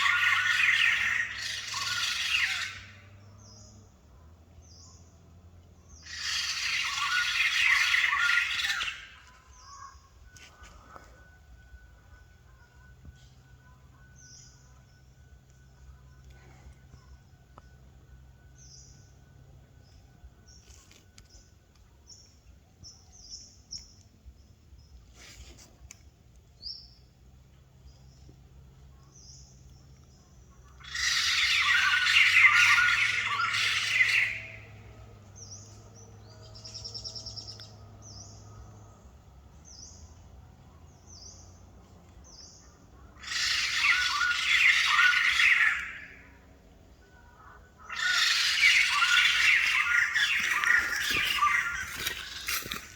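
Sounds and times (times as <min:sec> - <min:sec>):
bird high chirps: 0:00.0 - 0:03.8, 0:05.9 - 0:11.1, 0:29.1 - 0:38.5, 0:42.2 - 0:46.4, 0:47.0 - 0:52.9
loud outburst of bird calls: 0:00.0 - 0:05.2, 0:05.8 - 0:11.2, 0:30.4 - 0:39.0, 0:42.2 - 0:52.9.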